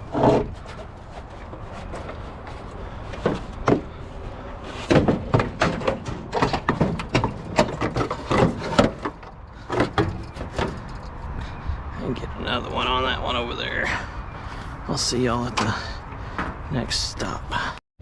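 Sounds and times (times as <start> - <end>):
hard objects knocking and clattering: 4.8 - 11.2.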